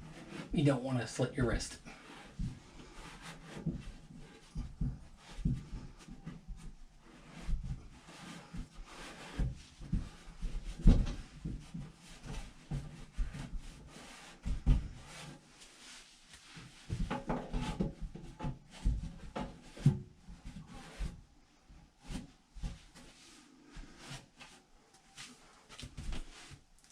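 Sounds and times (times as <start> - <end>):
metal duct knocks and scrapes: 16.9 - 20.0.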